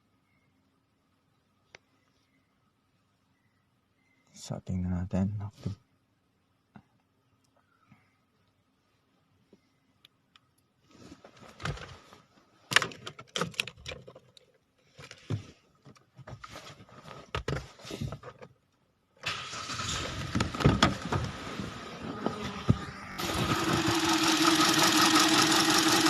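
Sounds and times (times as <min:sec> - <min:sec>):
car engine starting and running: 0:19.2 - 0:26.0.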